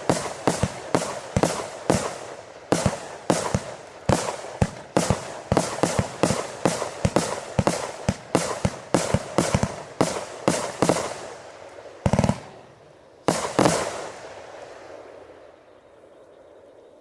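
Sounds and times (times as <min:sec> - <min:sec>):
firework sharp reports: 0:00.0 - 0:15.4
firework crackling hiss: 0:13.3 - 0:15.4.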